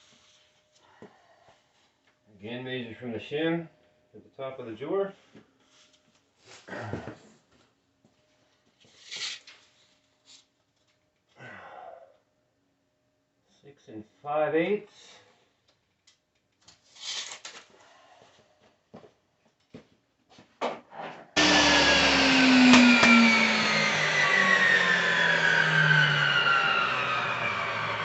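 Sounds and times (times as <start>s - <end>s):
electric saw motor whining: 21.4s - 28.0s.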